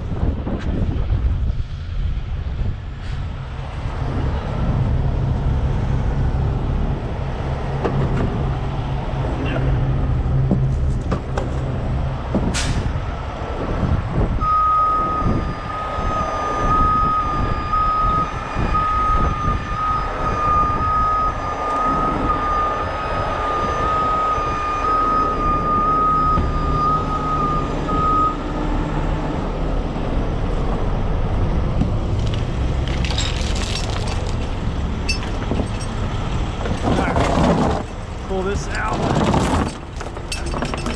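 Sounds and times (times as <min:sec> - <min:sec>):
diesel truck running: 0:00.0 - 0:40.9
reversing alarm beeping: 0:14.4 - 0:28.5.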